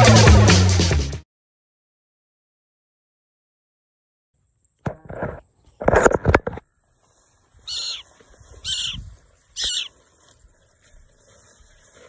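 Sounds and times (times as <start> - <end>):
short high bird calls: 7.6 - 10.0.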